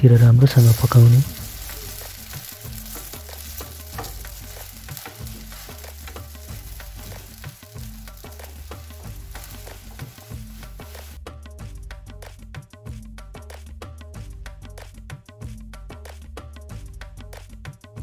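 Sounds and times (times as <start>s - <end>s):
flatbread sizzling in hot oil: 0.2s - 11.2s
spatula scraping and tapping pan: 0.6s - 11.2s.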